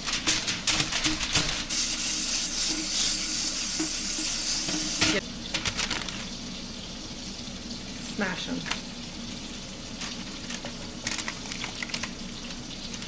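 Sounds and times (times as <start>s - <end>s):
aluminum foil crinkling: 0.0s - 1.8s, 5.5s - 6.4s, 9.9s - 13.0s.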